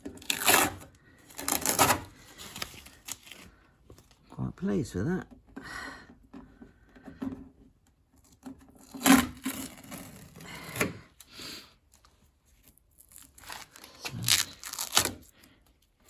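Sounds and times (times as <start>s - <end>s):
rustling and tearing handling: 0.0s - 4.9s, 11.9s - 16.0s.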